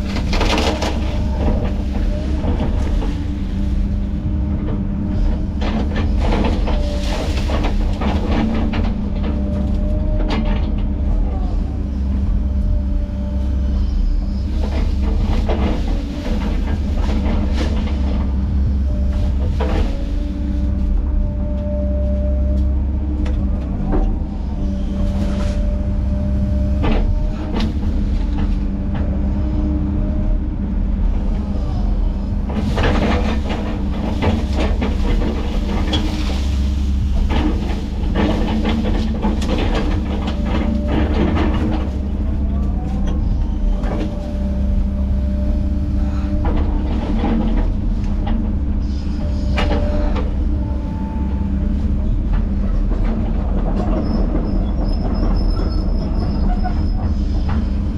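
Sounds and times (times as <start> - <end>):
heavy diesel machinery running: 0.0 - 57.9.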